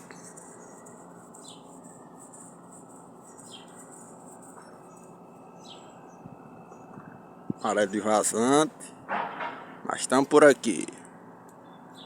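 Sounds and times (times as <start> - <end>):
faint outdoor background noise: 0.0 - 12.0
bird chirping falling notes: 3.2 - 7.8.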